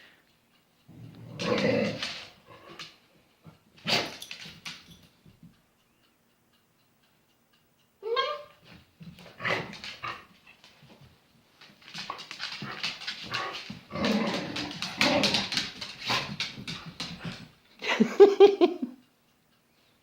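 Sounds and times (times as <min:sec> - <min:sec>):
dog grumbling and whining: 0:00.9 - 0:02.8, 0:09.3 - 0:10.4, 0:12.6 - 0:16.4.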